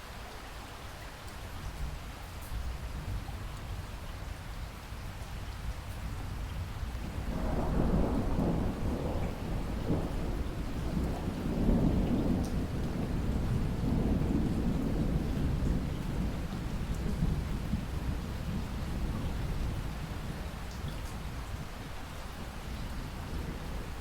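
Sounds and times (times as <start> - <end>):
steady rain falling: 0.0 - 24.0
thunder rumbling: 7.0 - 21.4.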